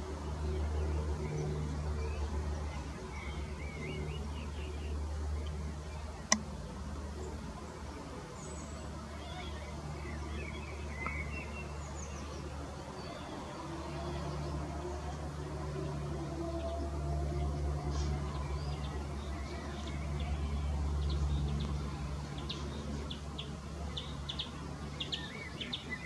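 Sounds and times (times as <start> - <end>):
small birds chirping: 0.2 - 15.2, 17.8 - 26.0
sharp click: 6.3 - 6.5.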